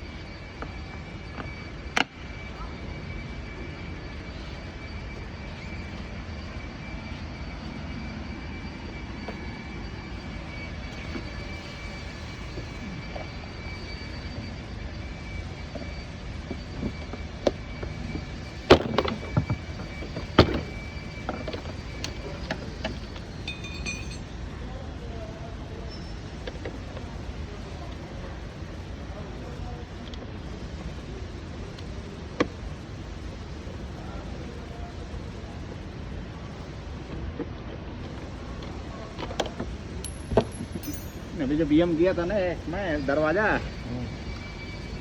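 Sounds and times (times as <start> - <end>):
mechanical hum with whine: 0.0 - 45.0.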